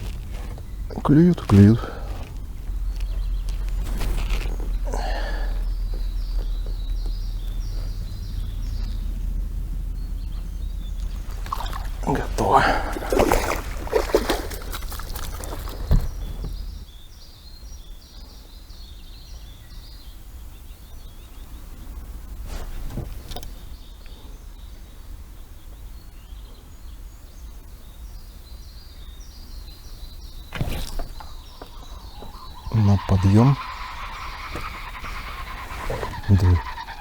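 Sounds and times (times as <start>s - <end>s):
low rumble: 0.0s - 13.9s.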